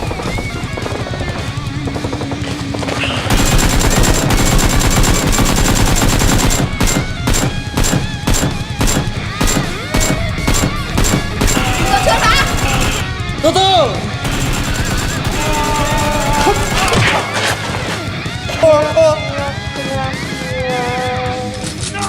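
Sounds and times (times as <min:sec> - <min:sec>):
automatic gunfire: 0:00.0 - 0:13.6, 0:14.2 - 0:18.0
background music: 0:00.0 - 0:22.0
single gunshots: 0:03.0 - 0:13.0.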